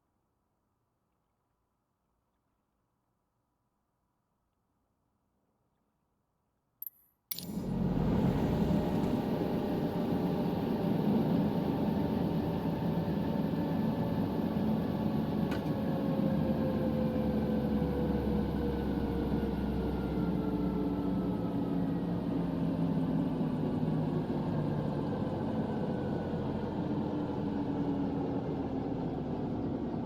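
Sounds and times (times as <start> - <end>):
helicopter engine and rotor: 7.4 - 30.0.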